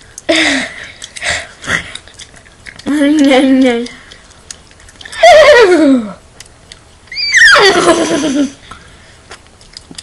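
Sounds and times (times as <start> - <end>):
girl imitating horse whinny: 7.1 - 7.8.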